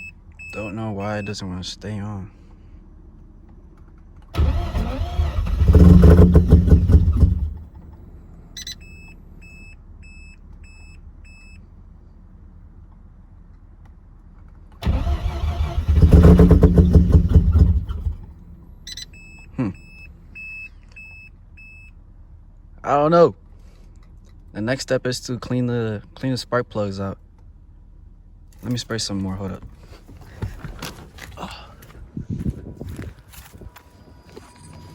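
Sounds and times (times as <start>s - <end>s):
rotary engine cranking and dying: 4.4s - 8.2s, 14.8s - 19.0s
short high electronic beeps: 18.8s - 20.1s.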